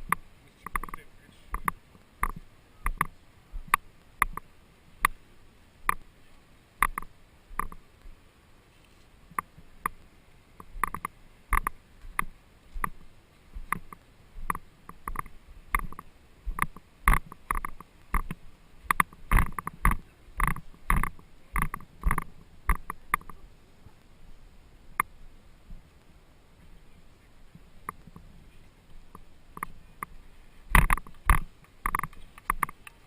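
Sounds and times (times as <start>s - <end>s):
paddle strokes knocking and splashing: 13.6s - 23.4s.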